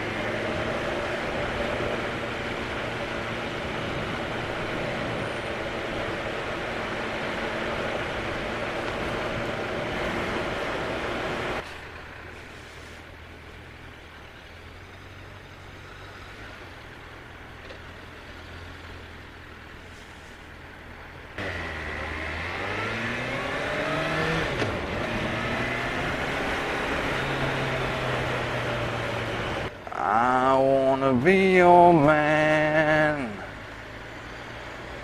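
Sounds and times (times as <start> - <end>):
motorcycle engine revving: 21.4 - 29.7.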